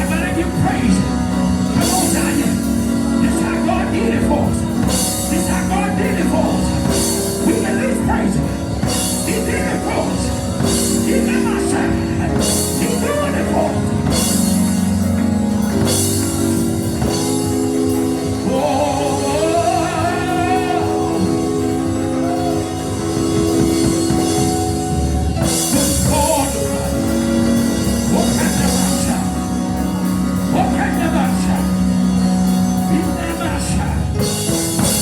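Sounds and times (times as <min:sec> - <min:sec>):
bass: 0:00.0 - 0:35.0
drums: 0:00.0 - 0:35.0
organ or keyboard chords: 0:00.0 - 0:35.0
person singing: 0:18.2 - 0:22.8.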